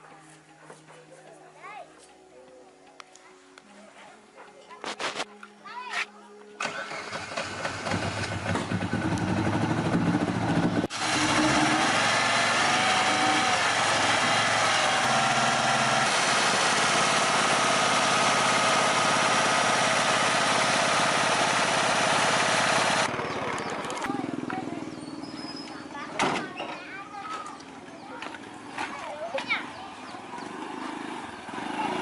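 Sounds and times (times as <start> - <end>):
small engine running: 6.6 - 25.0.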